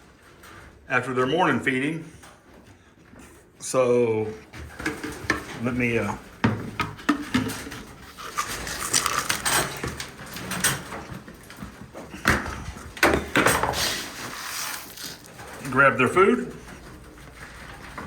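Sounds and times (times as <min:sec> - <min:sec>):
knocks and rustles of birds: 0:04.5 - 0:18.0.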